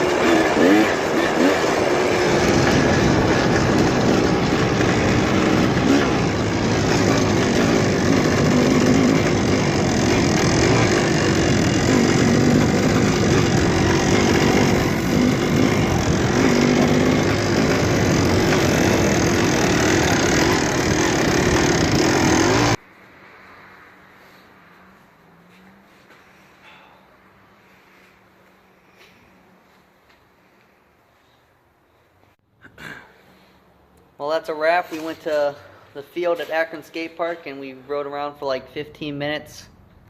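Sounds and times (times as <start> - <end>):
dirt bike engine: 0.0 - 28.2.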